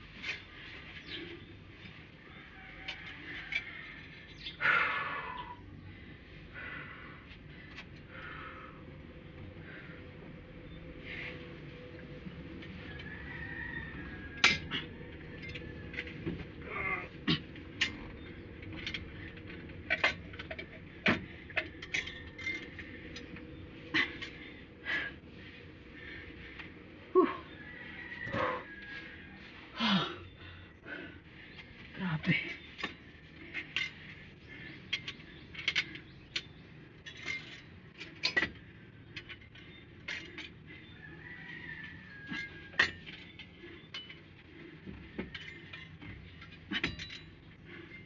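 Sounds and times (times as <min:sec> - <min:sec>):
metal tools and parts clinking: 0:14.1 - 0:25.2, 0:31.5 - 0:41.0, 0:41.8 - 0:48.0.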